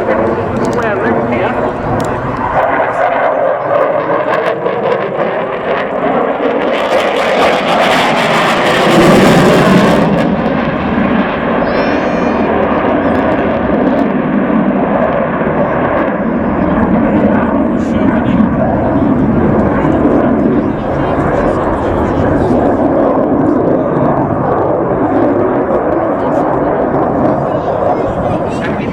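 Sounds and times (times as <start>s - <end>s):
aircraft engine rush: 0.0s - 28.9s.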